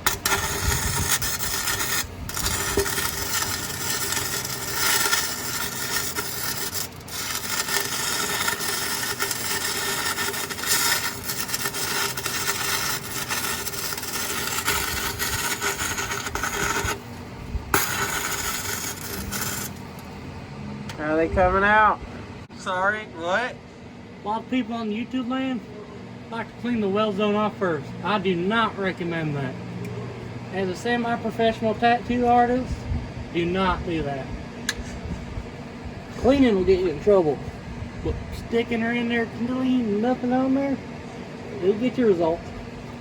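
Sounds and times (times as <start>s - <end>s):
welding arc hissing: 0.0s - 20.1s.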